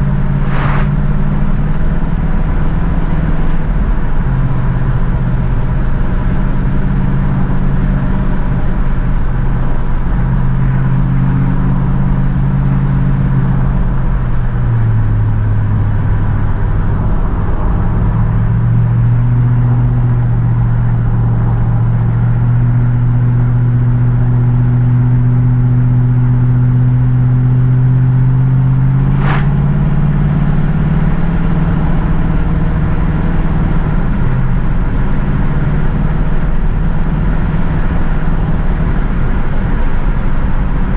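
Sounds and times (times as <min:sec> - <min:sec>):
car engine cruising: 0:00.0 - 0:40.9
sharp high-pitched sweep: 0:00.2 - 0:01.6, 0:28.9 - 0:30.0.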